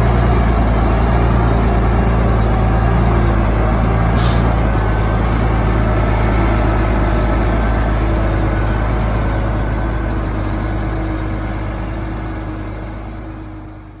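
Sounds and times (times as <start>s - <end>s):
heavy diesel engine rumbling: 0.0s - 14.0s.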